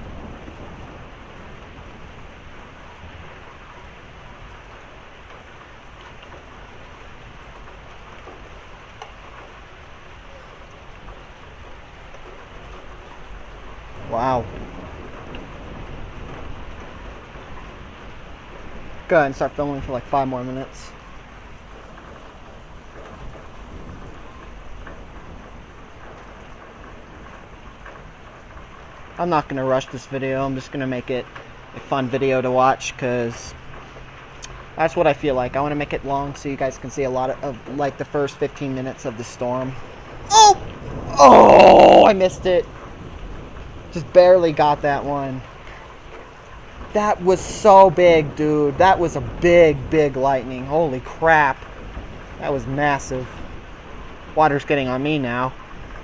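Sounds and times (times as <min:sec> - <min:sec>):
heavy rain falling: 0:00.0 - 0:56.0
raindrops striking nearby surfaces: 0:00.0 - 0:56.0
faint sharp drip ticks: 0:07.5 - 0:09.6, 0:28.6 - 0:39.1, 0:42.6 - 0:47.0.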